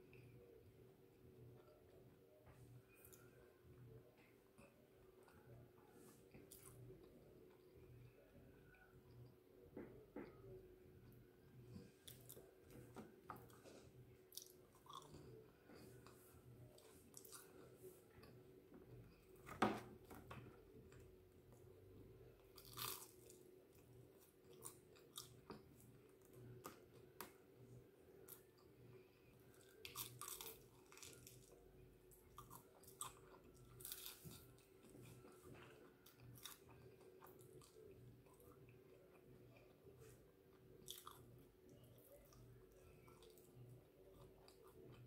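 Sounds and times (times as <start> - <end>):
person crunching chicken wing: 22.6 - 23.3, 29.8 - 31.6.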